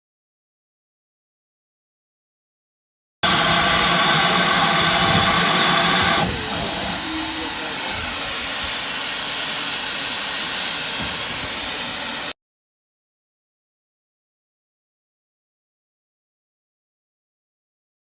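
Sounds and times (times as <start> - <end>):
steady multi-pitch tone: 3.2 - 7.7
steam locomotive hissing: 3.2 - 12.4.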